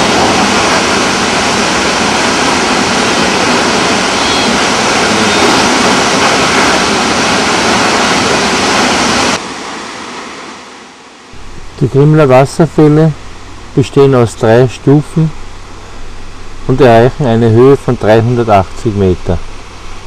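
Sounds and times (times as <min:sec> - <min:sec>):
waterfall rushing: 0:00.0 - 0:11.8
faint hiss: 0:09.9 - 0:20.0.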